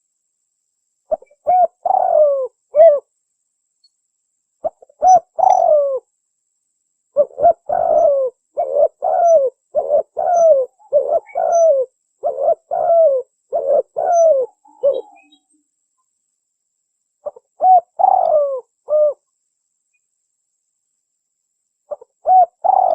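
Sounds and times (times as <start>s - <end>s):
dove cooing: 1.1s - 3.1s, 4.6s - 6.1s, 7.1s - 15.4s, 17.2s - 19.2s, 21.9s - 22.9s.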